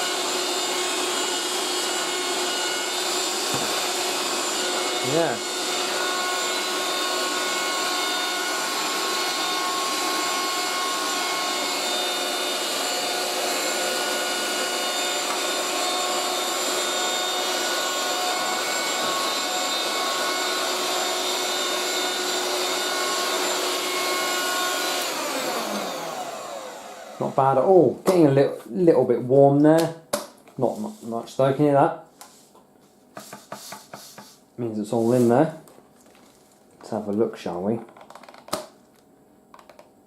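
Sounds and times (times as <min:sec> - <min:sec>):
handheld vacuum cleaner whining: 0:00.0 - 0:28.2.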